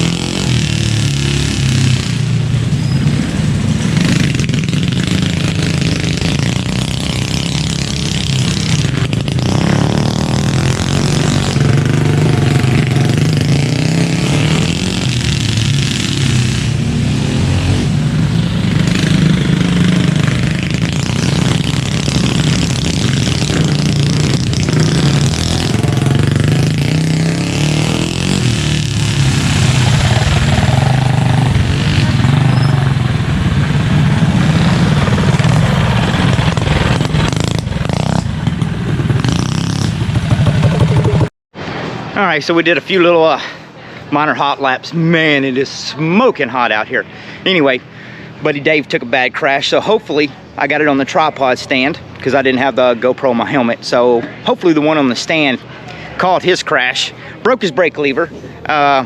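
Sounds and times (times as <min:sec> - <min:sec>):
mini bike engines revving: 0:00.0 - 0:41.3.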